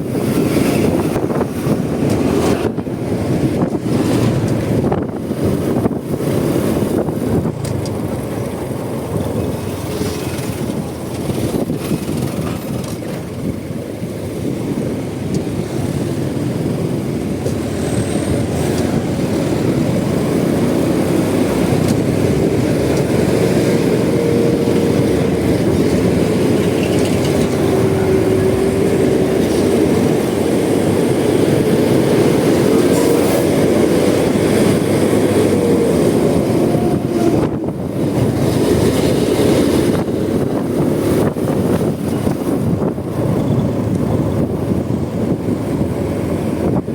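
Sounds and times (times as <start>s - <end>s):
road noise: 0.0s - 46.9s
wind on microphone: 0.0s - 46.9s
motorcycle engine: 16.0s - 46.8s.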